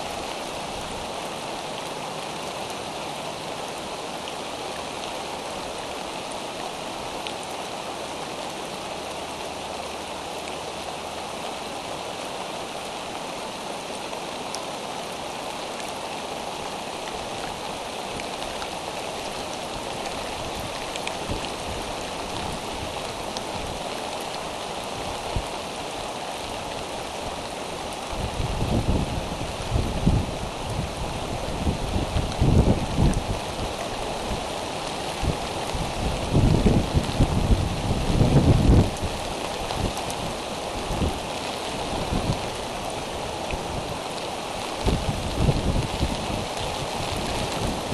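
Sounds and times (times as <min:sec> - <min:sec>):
steady rain hiss: 0:00.0 - 0:47.9.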